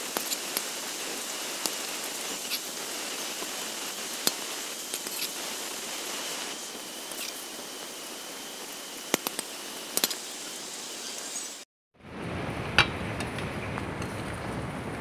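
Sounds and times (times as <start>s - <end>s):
food sizzling in a wok: 0.0s - 11.6s.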